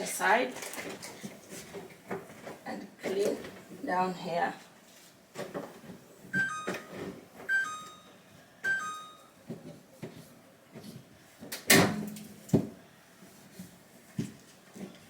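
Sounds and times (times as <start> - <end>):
electronic two-note beep: 6.4 - 9.3.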